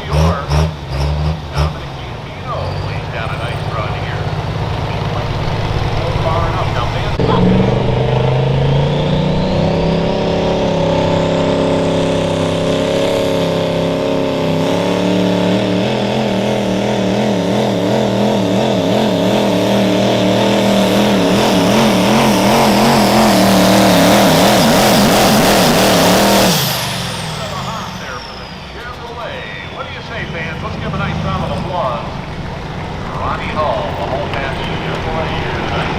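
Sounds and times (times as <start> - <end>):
diesel truck engine at full throttle: 0.0 - 35.9
high whine: 1.6 - 35.9.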